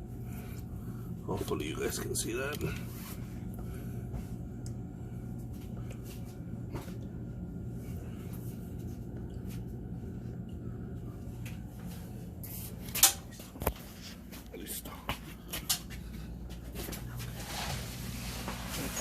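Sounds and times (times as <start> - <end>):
steady low hum: 0.0 - 19.0
scraping and handling noises: 15.1 - 19.0.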